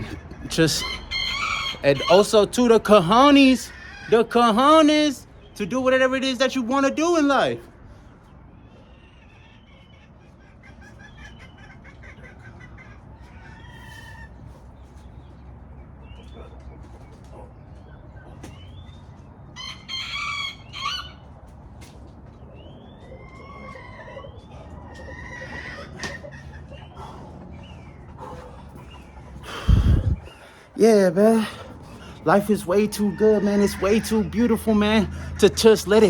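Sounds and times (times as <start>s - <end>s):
rooster crowing: 0.0s - 4.6s, 19.6s - 21.2s, 32.1s - 35.7s
small birds chirping: 0.0s - 36.0s
low background rumble: 24.4s - 36.0s.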